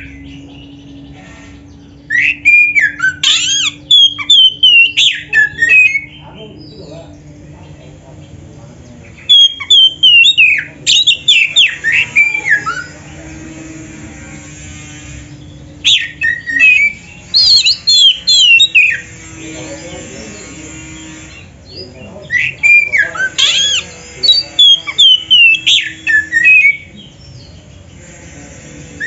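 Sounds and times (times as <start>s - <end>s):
bird singing whistled phrases: 2.0s - 6.8s, 9.2s - 13.0s, 15.8s - 19.0s, 22.2s - 26.9s.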